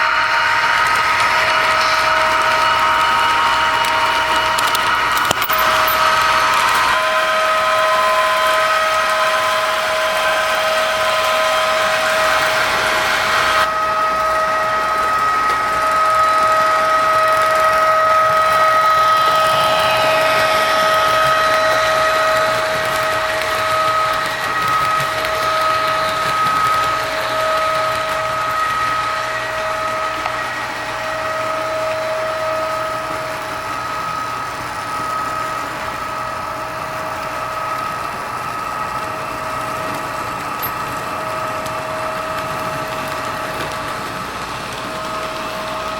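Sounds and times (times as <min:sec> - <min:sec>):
hiss: 0:00.0 - 0:45.9
model locomotive motor whine: 0:00.0 - 0:45.9.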